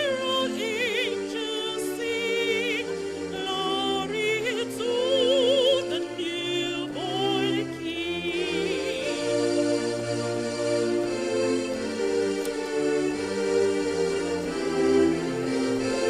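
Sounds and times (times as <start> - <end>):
woman singing with vibrato: 0.0 - 9.6
sustained chord accompaniment: 0.0 - 16.0.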